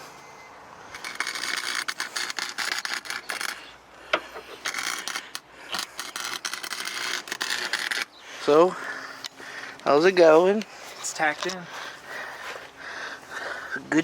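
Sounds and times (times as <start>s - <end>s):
electric welder crackling: 0.9s - 8.2s.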